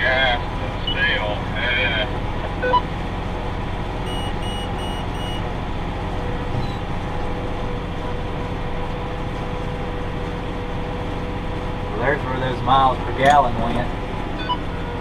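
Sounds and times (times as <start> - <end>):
tractor engine running: 0.0 - 15.0
short electronic beeps: 2.6 - 2.8, 4.0 - 5.5, 6.6 - 6.8, 14.4 - 14.9.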